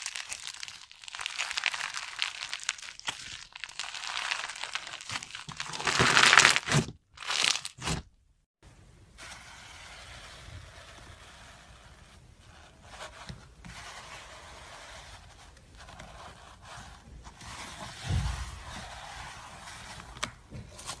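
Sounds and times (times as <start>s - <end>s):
slime being worked by hand: 0.0s - 8.1s, 9.2s - 21.0s
low thump: 18.0s - 18.9s.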